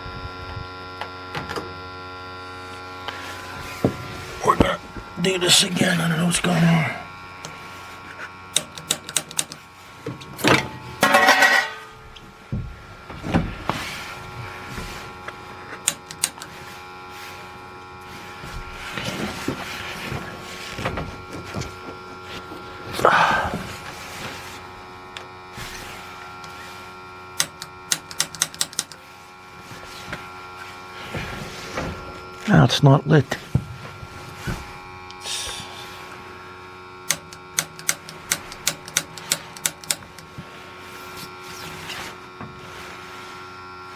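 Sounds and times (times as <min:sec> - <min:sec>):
steady hum: 0:00.0 - 0:43.9
igniter clicking: 0:08.5 - 0:09.6, 0:15.8 - 0:16.5, 0:27.4 - 0:29.0, 0:37.0 - 0:40.3.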